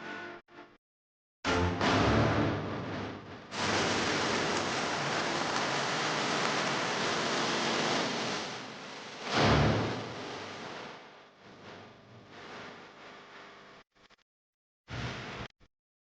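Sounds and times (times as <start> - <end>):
steady rushing noise: 3.6 - 11.0.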